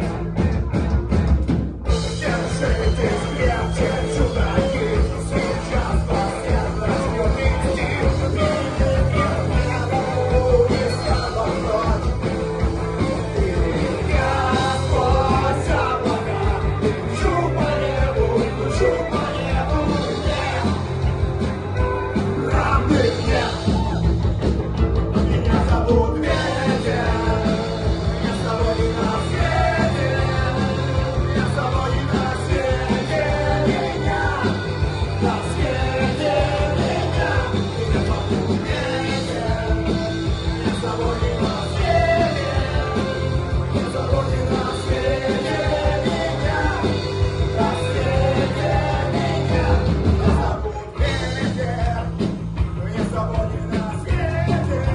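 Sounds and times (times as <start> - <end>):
rock band playing: 0.0 - 54.9
person singing: 2.1 - 24.2, 25.2 - 54.9.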